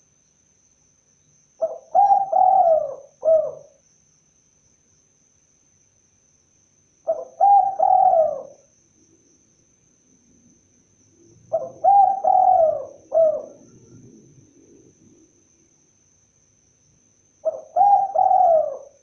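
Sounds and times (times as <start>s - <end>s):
dove cooing: 1.6s - 3.8s, 7.1s - 8.7s, 11.4s - 15.3s, 17.4s - 19.0s.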